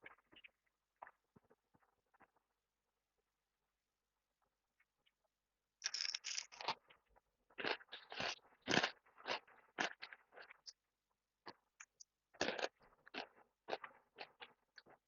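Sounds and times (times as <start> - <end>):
crunchy food chewed: 5.8 - 10.8, 11.4 - 15.0.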